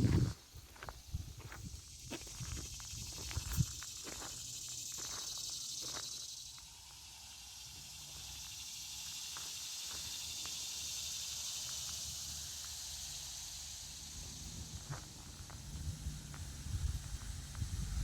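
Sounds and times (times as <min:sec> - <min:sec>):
wind rumble on microphone: 0:00.0 - 0:03.8, 0:14.4 - 0:18.0
insect chorus buzzing: 0:00.0 - 0:18.0.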